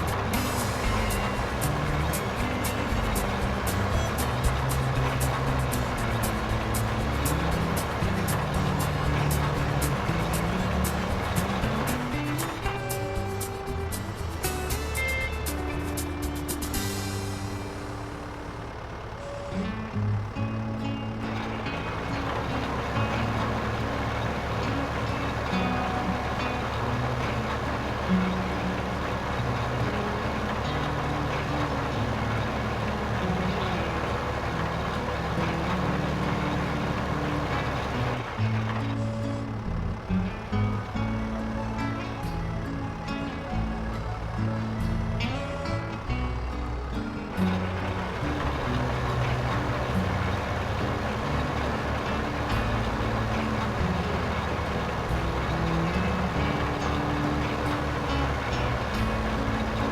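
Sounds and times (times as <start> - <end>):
music playing: 0.0 - 59.9
truck engine and road noise: 0.0 - 59.9.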